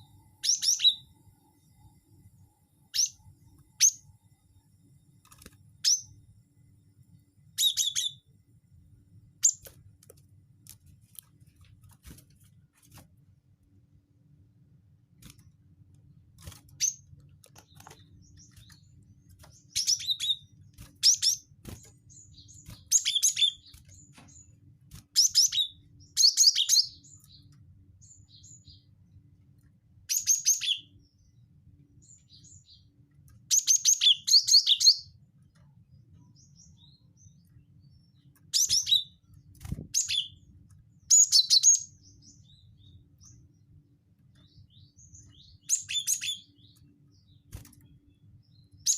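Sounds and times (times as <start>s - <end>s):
faint low hum: 0.0s - 48.9s
bird chirping in bursts: 0.3s - 1.1s, 2.8s - 4.1s, 5.8s - 6.2s, 7.5s - 8.3s, 9.4s - 9.7s, 16.5s - 29.2s, 30.1s - 31.4s, 32.0s - 35.2s, 35.9s - 43.8s, 44.4s - 48.9s.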